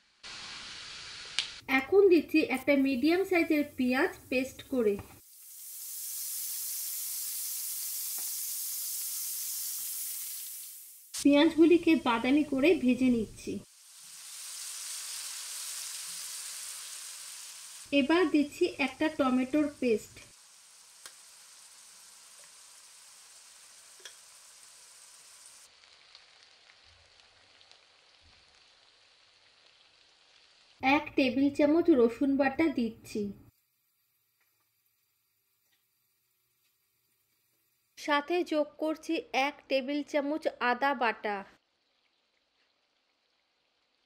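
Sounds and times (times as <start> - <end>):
onion paste sizzling in oil: 0.0 - 39.2, 41.6 - 44.0
spatula stirring ticks: 21.0 - 21.2, 24.0 - 24.3.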